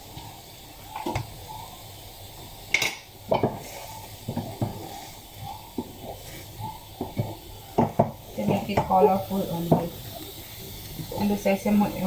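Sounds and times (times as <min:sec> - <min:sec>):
utensil scraping a wok: 0:02.8 - 0:07.3.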